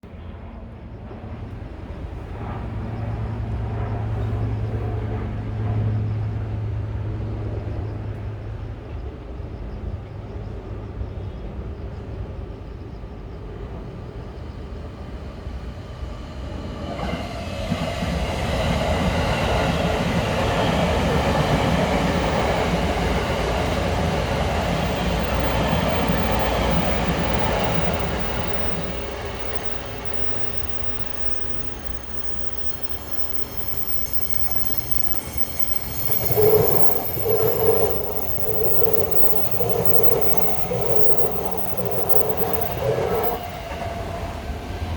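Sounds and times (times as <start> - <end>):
electric train passing: 13.5 - 44.9
wheel and rail rumble: 17.0 - 44.4
low hum: 21.8 - 43.6.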